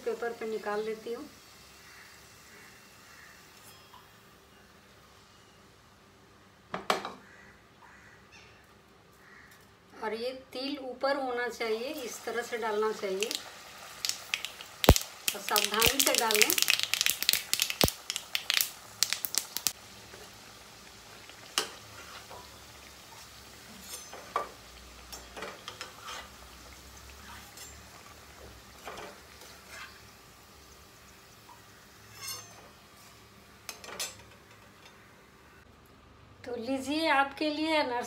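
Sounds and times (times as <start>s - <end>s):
food frying in hot oil: 0.0s - 4.3s, 11.6s - 34.6s
metal spoon scraping a pan: 21.6s - 26.5s, 27.2s - 28.0s, 28.8s - 30.1s, 32.0s - 35.0s.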